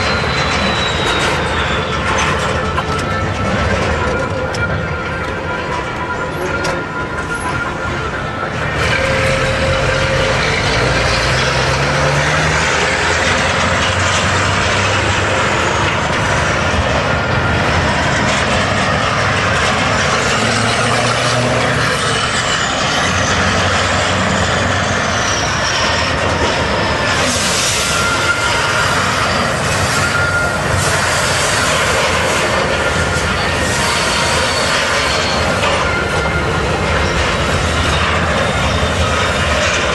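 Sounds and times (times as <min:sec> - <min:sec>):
high whistle: 0:00.0 - 0:03.0, 0:27.4 - 0:36.5
diesel truck engine running: 0:00.0 - 0:39.9.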